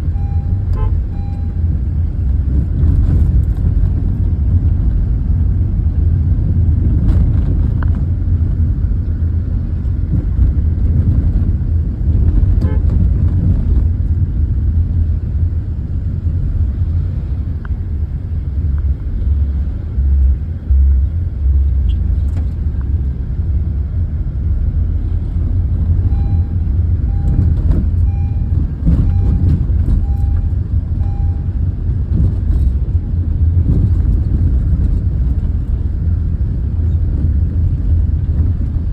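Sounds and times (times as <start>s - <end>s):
faint repeated beeps: 0.0s - 1.7s, 26.0s - 31.6s
tractor engines rumbling: 0.0s - 38.9s.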